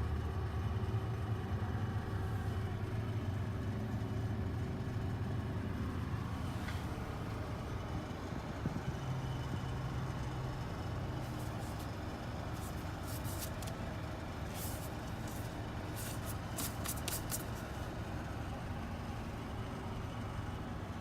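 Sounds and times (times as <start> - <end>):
vehicle engine humming: 0.0 - 21.0
short sharp hisses and clicks: 14.5 - 17.6.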